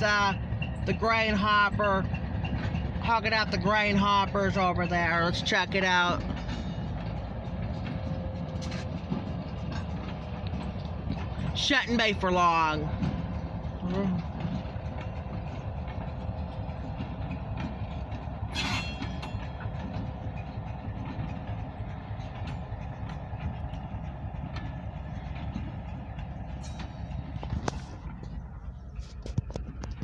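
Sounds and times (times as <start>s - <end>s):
diesel freight train rumbling past: 0.0s - 30.0s
sharp metallic sound: 18.5s - 19.6s.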